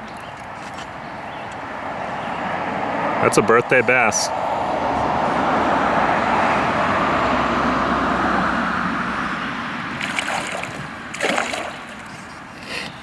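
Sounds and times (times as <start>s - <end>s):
water splashing: 9.8s - 13.0s.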